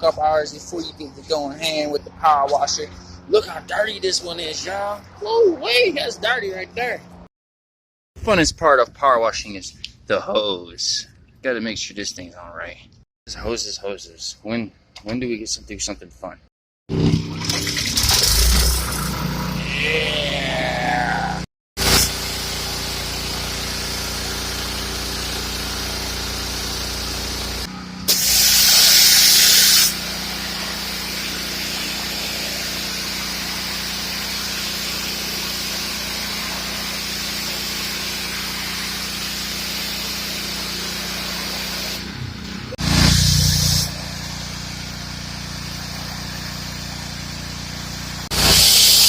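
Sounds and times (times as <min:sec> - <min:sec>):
pressure washer engine running: 0:16.9 - 0:20.6, 0:21.8 - 0:49.0
high-pressure water spraying: 0:21.8 - 0:42.1, 0:42.8 - 0:49.0.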